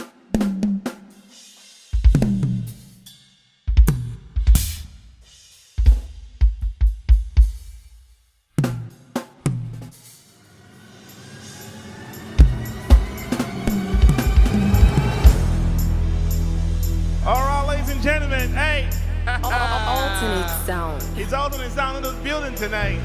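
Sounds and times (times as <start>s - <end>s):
acoustic drum kit fills: 0.0s - 10.3s, 11.0s - 18.5s.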